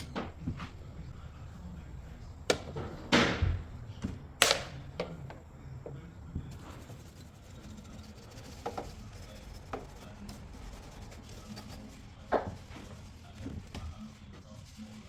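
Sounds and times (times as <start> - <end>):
rubbing and scraping: 6.5 - 15.0.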